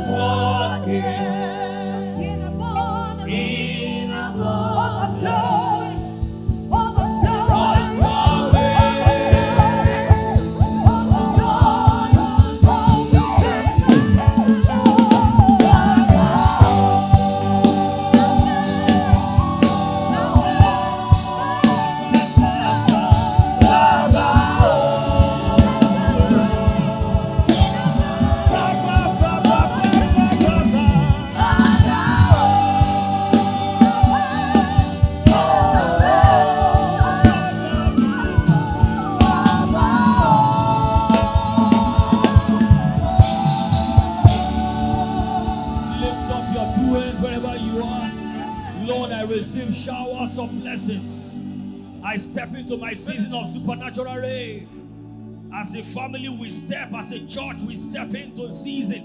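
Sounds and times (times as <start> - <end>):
voices singing gospel: 0.0 - 59.0
band with drum kit: 5.4 - 49.4.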